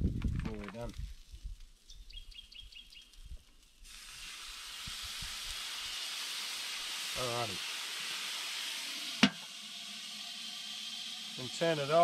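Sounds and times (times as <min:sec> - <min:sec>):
ribs sizzling in a pan: 0:03.8 - 0:12.0.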